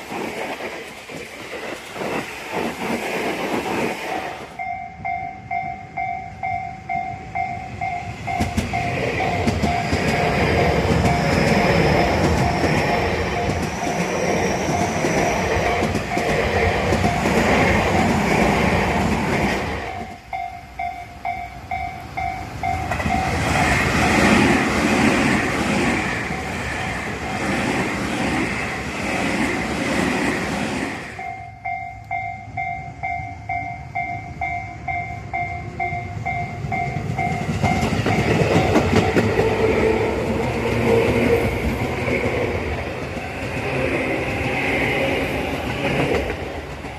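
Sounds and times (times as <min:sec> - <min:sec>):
train wheels clattering: 0:07.9 - 0:20.4, 0:36.6 - 0:46.9.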